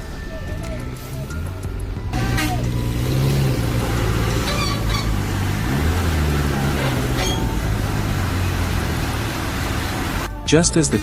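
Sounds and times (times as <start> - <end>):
diesel engine under load: 0.0 - 11.0.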